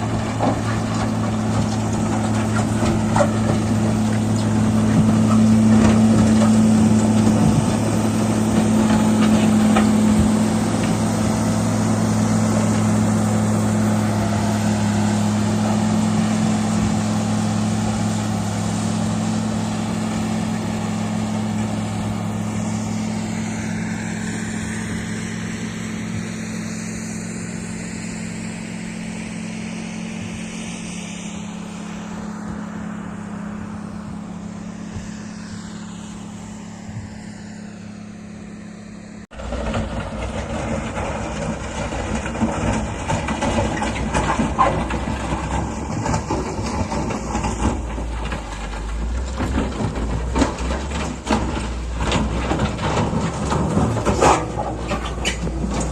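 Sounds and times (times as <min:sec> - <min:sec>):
diesel machinery engine running: 0:00.0 - 0:55.9
machine rattling and clatter: 0:39.4 - 0:55.9.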